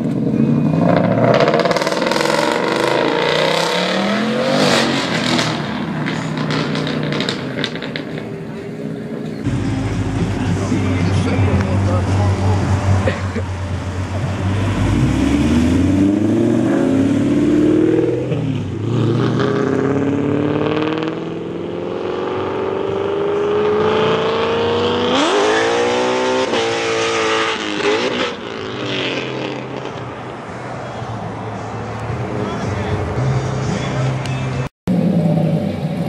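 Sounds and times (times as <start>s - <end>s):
engine revving: 0.0s - 8.1s, 9.5s - 30.1s
car engine accelerating hard: 0.0s - 8.3s, 9.4s - 36.0s.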